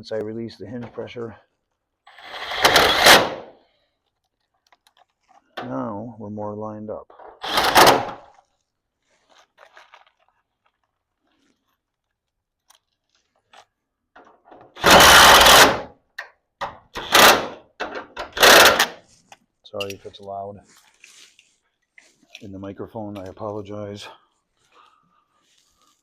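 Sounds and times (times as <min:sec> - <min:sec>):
loud grinding clattering: 0:02.1 - 0:03.5, 0:07.3 - 0:08.2, 0:14.8 - 0:15.9, 0:17.0 - 0:19.0.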